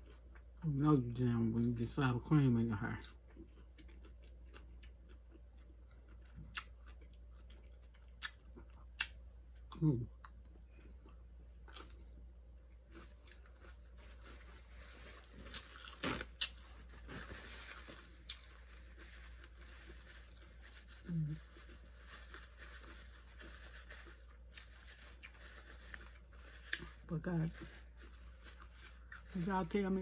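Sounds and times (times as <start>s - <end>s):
chewing chips: 2.9s - 29.8s.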